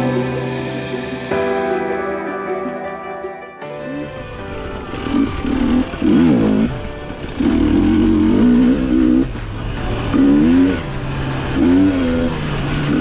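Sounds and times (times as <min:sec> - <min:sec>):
dirt bike engine revving: 0:05.0 - 0:13.0.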